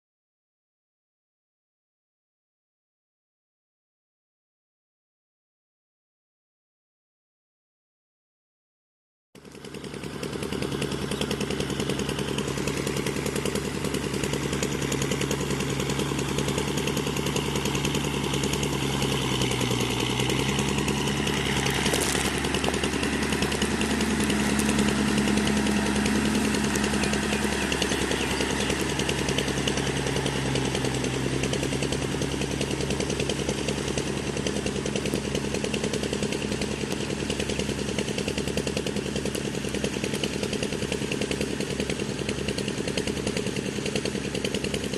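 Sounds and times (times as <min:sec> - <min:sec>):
tractor diesel engine under load: 0:09.4 - 0:44.9.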